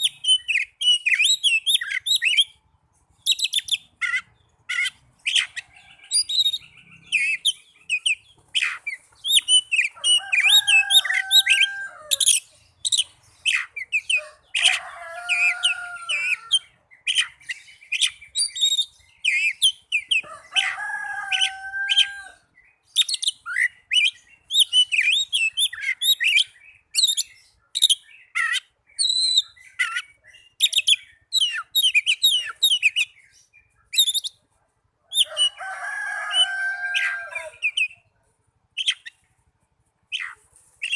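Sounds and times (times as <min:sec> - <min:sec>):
songbird whistles and trills: 0:00.0 - 0:02.6, 0:03.2 - 0:16.4, 0:17.0 - 0:20.3, 0:22.7 - 0:34.5.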